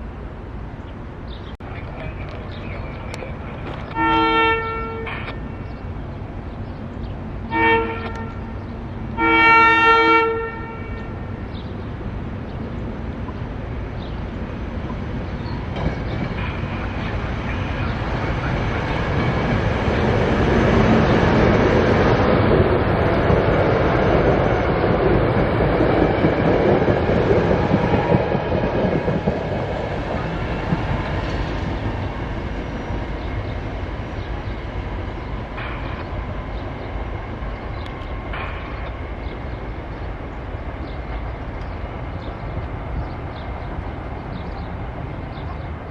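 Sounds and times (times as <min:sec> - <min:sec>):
train rumbling past: 0:00.0 - 0:45.9
train horn blasts: 0:03.9 - 0:05.5, 0:07.5 - 0:08.6, 0:09.2 - 0:11.3.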